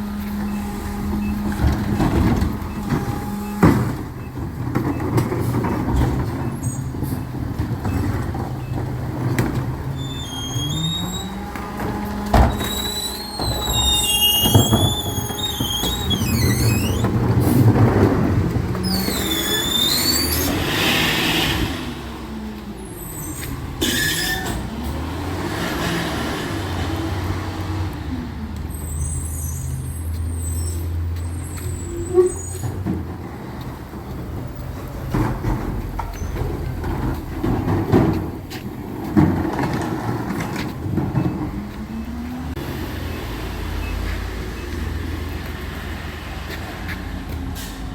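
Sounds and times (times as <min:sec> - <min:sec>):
truck engine droning: 0:00.0 - 0:47.9
high wavering squeals: 0:09.8 - 0:17.6, 0:18.8 - 0:22.1
air brake hiss: 0:19.2 - 0:22.0, 0:47.6 - 0:47.9.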